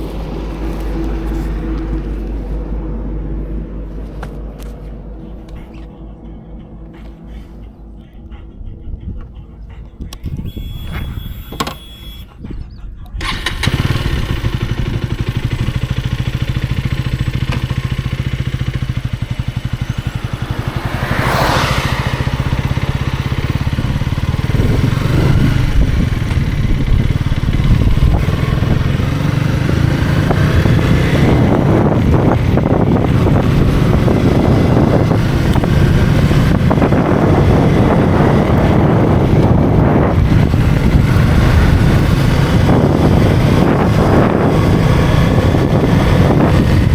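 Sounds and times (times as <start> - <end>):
motorcycle engine running: 0.0 - 9.2, 13.2 - 46.9
rising and falling tone: 0.0 - 11.0, 18.3 - 26.8
wind and road noise: 0.0 - 46.9.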